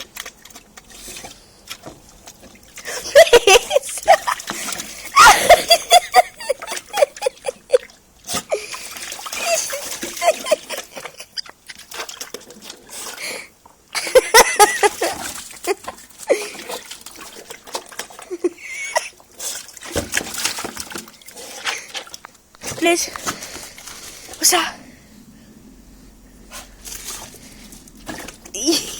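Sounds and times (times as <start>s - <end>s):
splashing water: 0.0s - 25.0s, 26.5s - 28.9s
dog yipping and whining: 9.4s - 10.8s.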